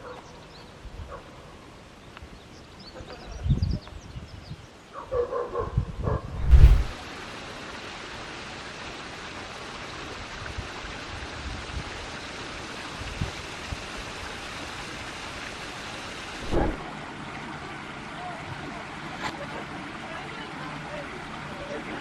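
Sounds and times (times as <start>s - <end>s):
faint low thumps: 6.4s - 7.0s
stream of water rushing: 6.5s - 22.0s.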